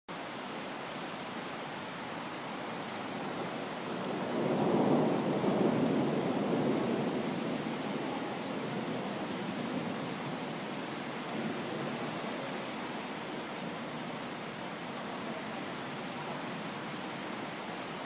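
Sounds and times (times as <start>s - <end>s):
heavy rain: 0.1s - 18.0s
rolling thunder: 4.0s - 10.4s.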